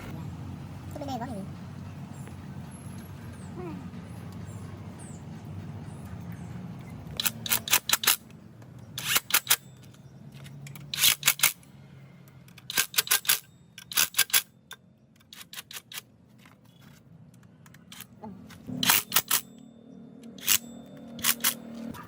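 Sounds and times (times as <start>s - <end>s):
sharp clicks: 6.8s - 16.1s, 20.2s - 21.9s.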